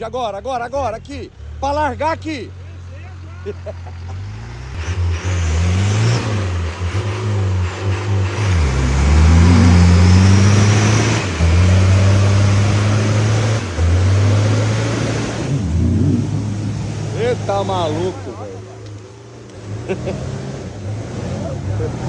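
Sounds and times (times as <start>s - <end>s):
off-road vehicle engine revving: 0.0s - 22.0s.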